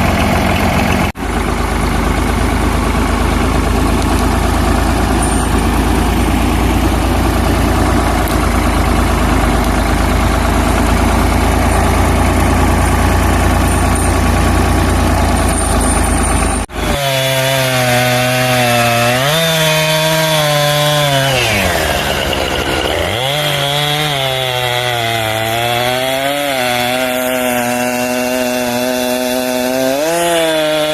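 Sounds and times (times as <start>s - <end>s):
tractor engine running: 0.0s - 30.9s
small engine revving: 15.4s - 30.9s.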